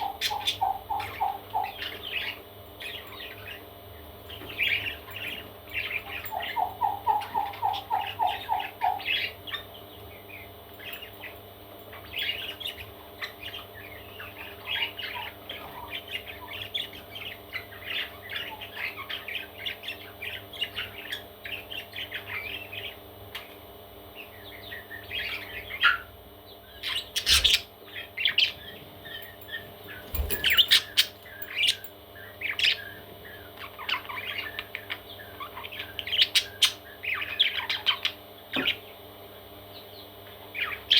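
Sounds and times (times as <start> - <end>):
lower evenly spaced calls: 0.0 - 1.8, 6.3 - 9.2
parrot chicks chirping and squawking: 0.0 - 40.9.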